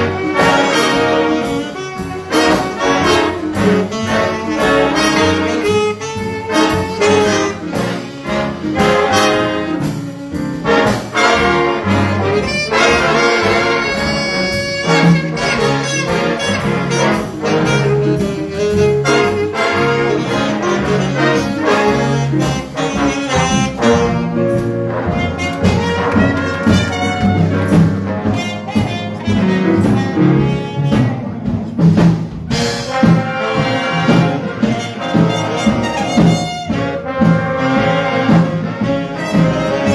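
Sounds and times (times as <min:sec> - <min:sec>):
jazz ensemble playing: 0:00.0 - 0:39.9.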